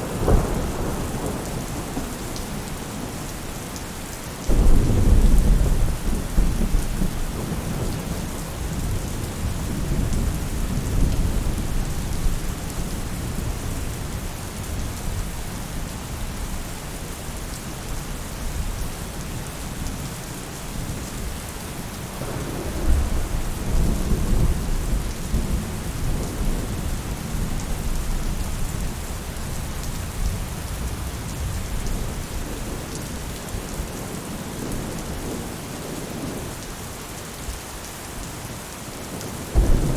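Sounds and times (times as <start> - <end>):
rain falling on a roof: 0.0 - 39.9
rolling thunder rumbles: 4.4 - 13.8, 22.2 - 29.6, 39.1 - 39.9.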